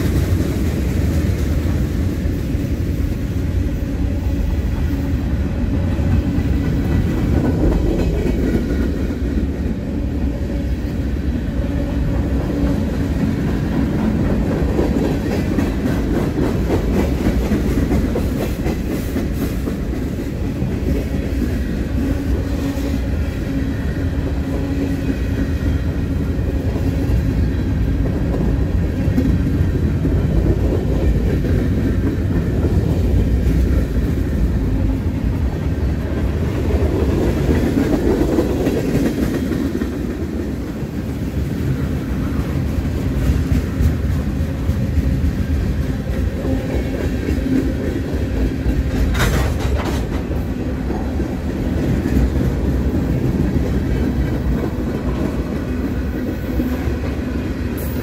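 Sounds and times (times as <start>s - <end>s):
freight train rolling past: 0.0s - 58.0s
wheels clicking over rail joints: 42.4s - 57.2s.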